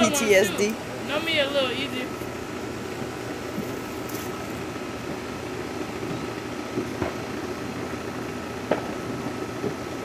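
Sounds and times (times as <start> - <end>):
outdoor background hum: 0.0 - 10.0
distant firecrackers popping: 6.0 - 7.6, 8.6 - 10.0.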